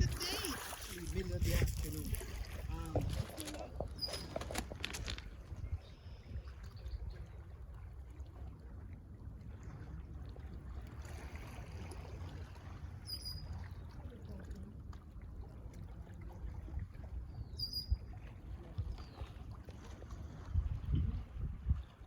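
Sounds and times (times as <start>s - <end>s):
wind on microphone: 0.0s - 7.4s, 16.5s - 22.0s.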